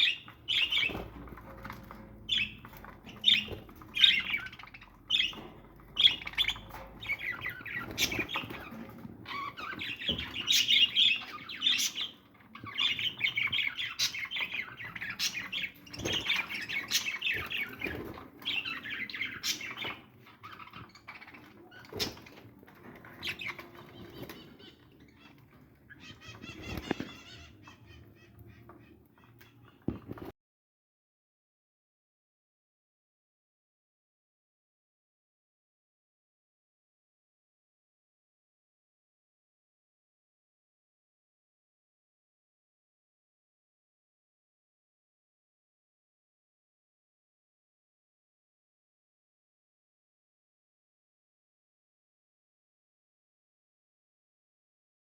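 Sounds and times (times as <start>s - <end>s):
birds calling and chattering: 0.0s - 30.3s.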